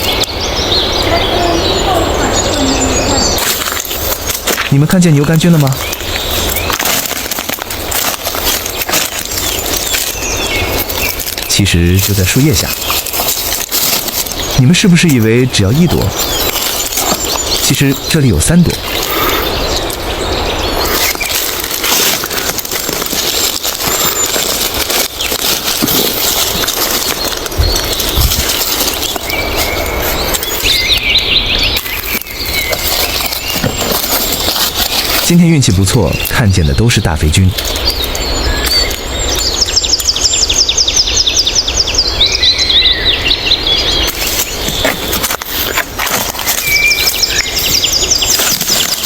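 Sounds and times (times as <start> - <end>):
dry leaves and twigs crackling: 0.0 - 49.0
songbird singing: 0.0 - 49.0.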